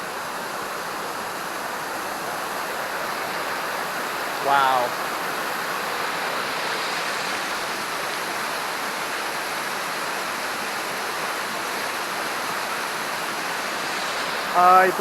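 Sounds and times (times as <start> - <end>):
fast-flowing river rushing: 0.0 - 15.0.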